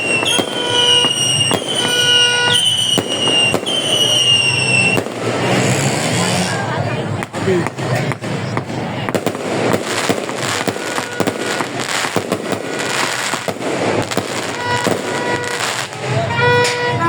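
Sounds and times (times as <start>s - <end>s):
horn-like tooting: 0.0s - 6.6s, 14.4s - 17.0s
fireworks bangs and crackling: 0.0s - 17.0s.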